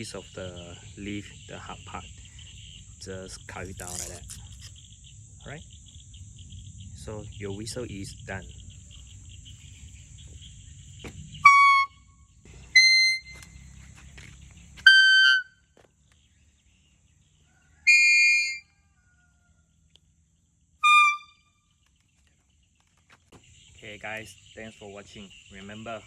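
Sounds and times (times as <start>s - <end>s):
crickets chirping: 0.0s - 26.0s
leaf whistle shrill toots: 11.4s - 12.1s, 12.7s - 13.5s, 14.8s - 15.7s, 17.8s - 18.8s, 20.8s - 21.6s.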